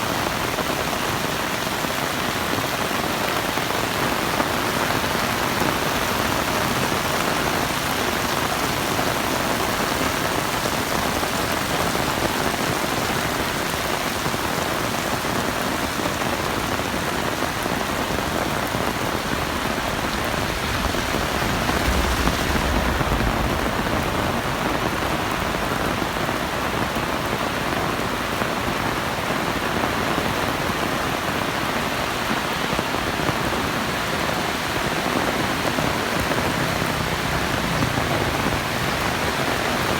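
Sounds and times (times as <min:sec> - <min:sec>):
heavy rain falling: 0:00.0 - 0:39.9
low rumble: 0:17.8 - 0:27.2.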